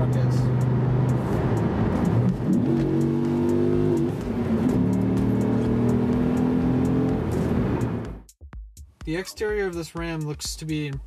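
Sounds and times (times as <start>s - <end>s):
engine accelerating hard: 0.0s - 8.2s.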